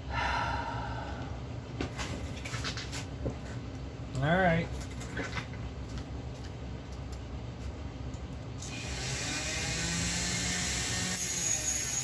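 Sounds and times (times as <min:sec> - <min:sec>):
small motorised tool whirring: 0:08.6 - 0:12.0.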